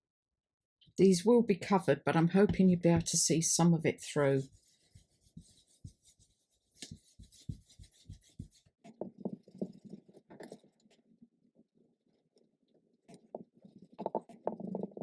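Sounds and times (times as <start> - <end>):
taps and rubbing on paper: 4.4 - 10.4.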